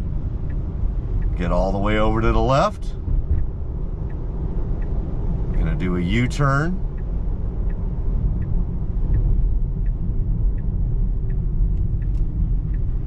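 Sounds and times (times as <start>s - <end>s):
road and tyre rumble: 0.0s - 13.0s
turn signal ticking: 0.0s - 13.0s.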